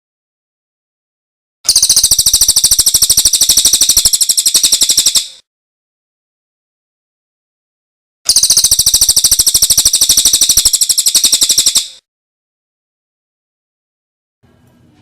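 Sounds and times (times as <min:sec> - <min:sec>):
songbird rapid trill: 0:01.7 - 0:05.4, 0:08.3 - 0:12.0.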